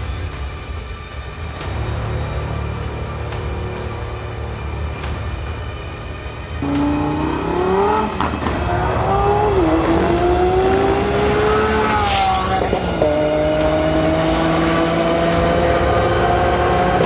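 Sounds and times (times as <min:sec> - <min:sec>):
sports car engine accelerating: 0:06.6 - 0:17.0.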